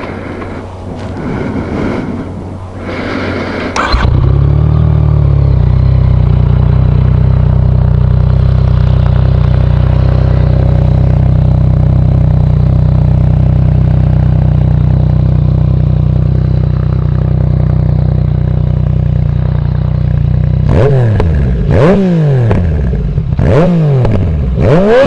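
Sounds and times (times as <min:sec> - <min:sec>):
motorcycle engine starting and idling: 0:02.9 - 0:25.0.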